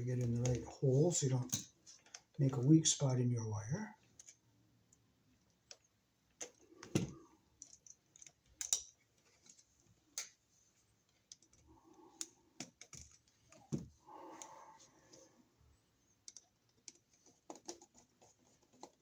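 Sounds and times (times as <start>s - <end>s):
small clicks and taps of tools: 4.2s - 7.0s, 7.6s - 10.4s, 11.0s - 15.2s, 16.2s - 19.0s.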